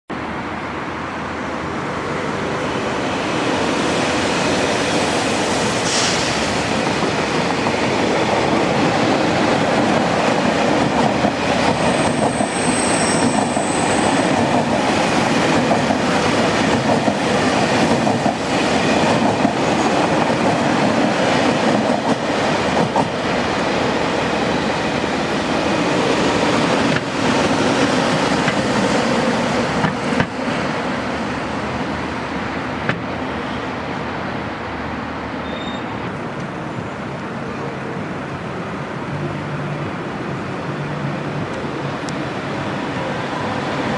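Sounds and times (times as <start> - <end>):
train wheels rolling on rails: 1.6 - 43.9
high wheel squeal: 11.9 - 14.2, 35.4 - 36.0.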